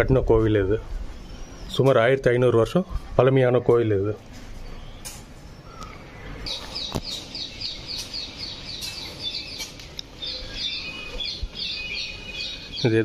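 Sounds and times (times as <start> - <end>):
small bird chirping: 4.5 - 13.0.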